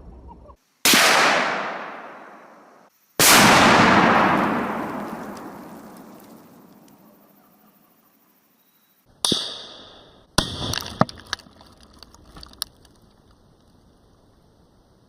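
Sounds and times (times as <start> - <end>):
exploding target blasts: 0.9 - 2.5, 3.2 - 6.7
rifle shot cracks: 0.9 - 7.0.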